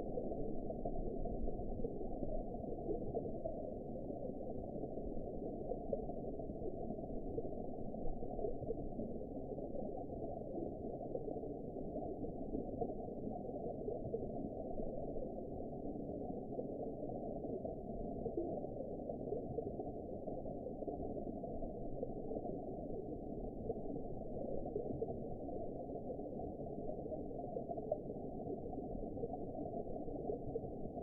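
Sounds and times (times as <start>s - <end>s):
muffled underwater water noise: 0.0s - 31.0s.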